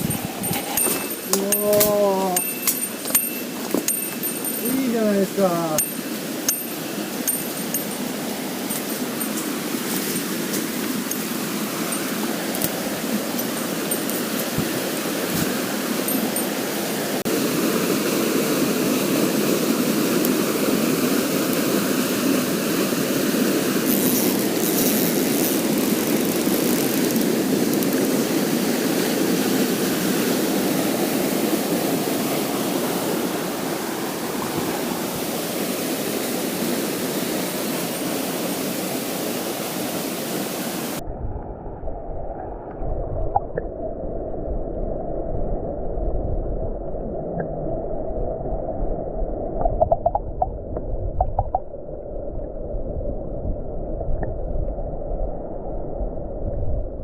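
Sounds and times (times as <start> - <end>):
stream rushing over rocks: 0.0 - 41.0
muffled underwater rumbling: 41.0 - 57.0.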